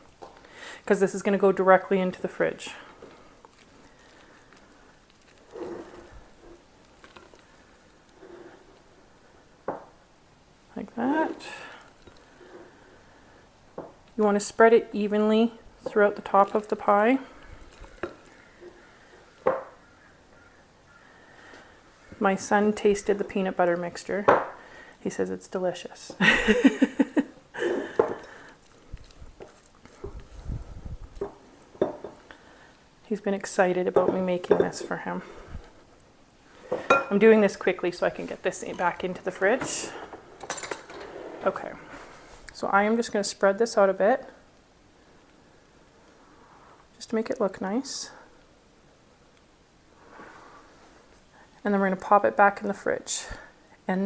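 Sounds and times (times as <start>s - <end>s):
filling being spooned and spread: 0.3s - 9.4s, 11.3s - 13.8s, 15.8s - 19.4s, 28.0s - 32.8s
utensil scraping a pie dish: 3.1s - 8.8s.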